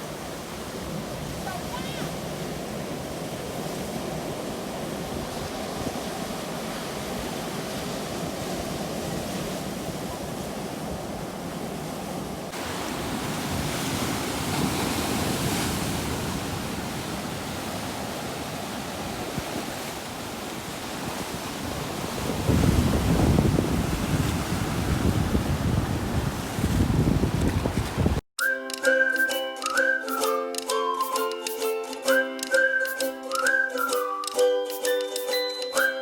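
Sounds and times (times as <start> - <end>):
sea waves washing in: 0.0 - 28.2.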